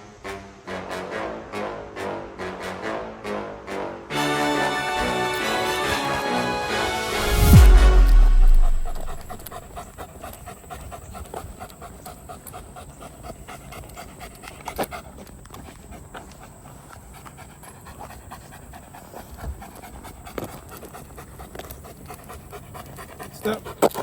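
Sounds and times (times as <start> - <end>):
large dog panting: 5.2 - 24.0.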